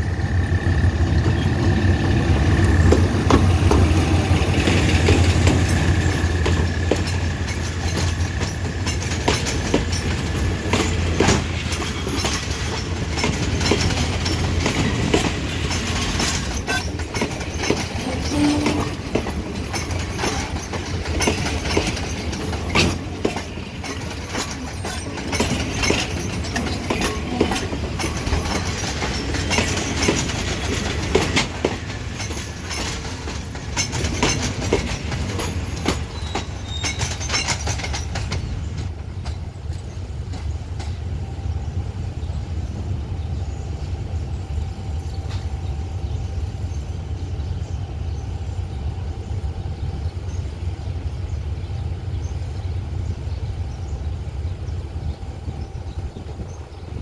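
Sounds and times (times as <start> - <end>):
diesel locomotive engine drone: 0.0 - 57.0
train wheels clacking over rail joints: 0.9 - 41.2.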